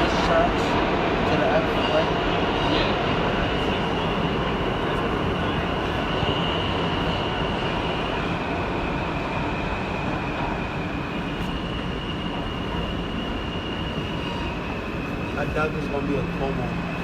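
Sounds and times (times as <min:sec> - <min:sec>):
subway wheels rumbling on rail: 0:00.0 - 0:17.0.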